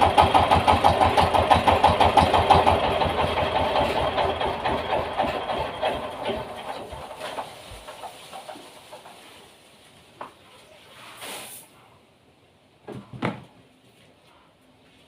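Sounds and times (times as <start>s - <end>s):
diesel engine chugging: 0.0s - 8.7s.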